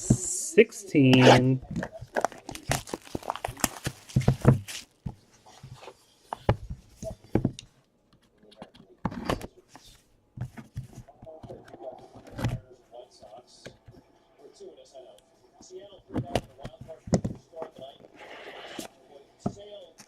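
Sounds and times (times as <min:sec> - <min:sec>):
taps and rustles of packaging: 0:01.7 - 0:07.6
packaging crackling: 0:01.8 - 0:05.0.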